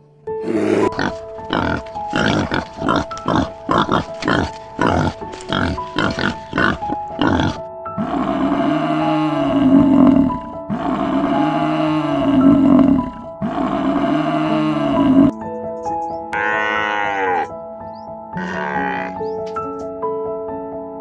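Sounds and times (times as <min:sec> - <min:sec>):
soft piano music: 0:00.0 - 0:13.8, 0:14.4 - 0:21.0
water buffalo lowing: 0:00.4 - 0:15.3, 0:16.4 - 0:17.5, 0:18.4 - 0:19.3
wild boar grunting: 0:00.4 - 0:15.3, 0:18.4 - 0:19.3.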